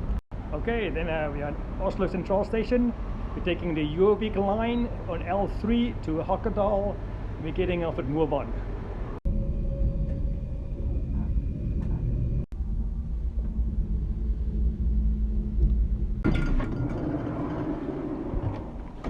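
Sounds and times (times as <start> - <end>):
train rumbling: 8.6 - 19.0.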